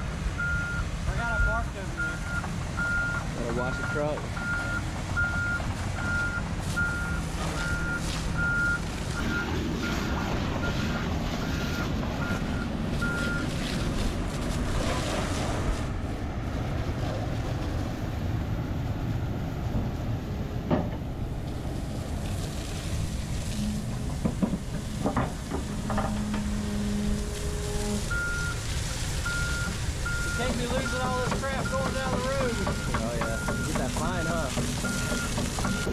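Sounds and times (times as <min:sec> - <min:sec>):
diesel engine running: 0:00.0 - 0:35.9
reversing alarm beeping: 0:00.4 - 0:13.5, 0:25.9 - 0:35.9.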